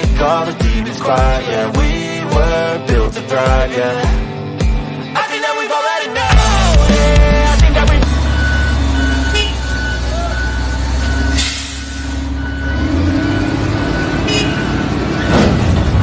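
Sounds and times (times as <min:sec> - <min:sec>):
heavy truck engine running: 0:06.3 - 0:16.0
high beeping: 0:08.2 - 0:15.3.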